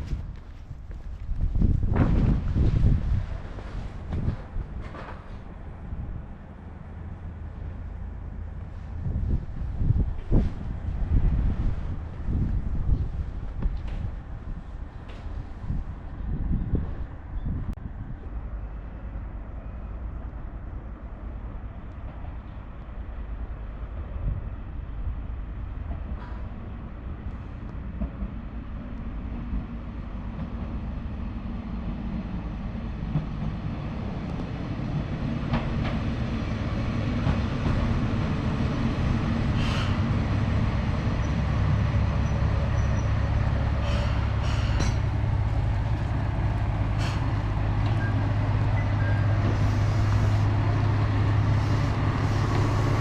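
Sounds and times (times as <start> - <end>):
diesel railcar rumble: 0.0 - 53.0
wheels clicking and squeaking on track: 41.0 - 53.0.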